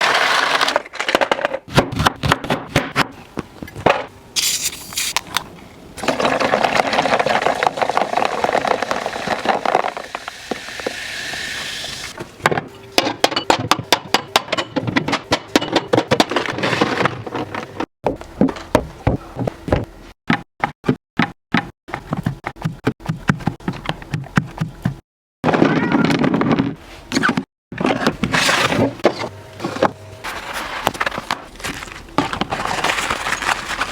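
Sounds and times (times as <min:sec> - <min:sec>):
plastic containers clicking and scraping: 0:00.0 - 0:02.4, 0:06.0 - 0:11.0, 0:25.5 - 0:33.9
packaging rustling: 0:30.3 - 0:33.9.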